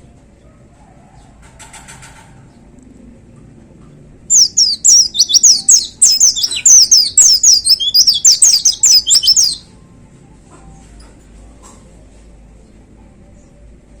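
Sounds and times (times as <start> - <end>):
bird twittering song: 4.3 - 9.6.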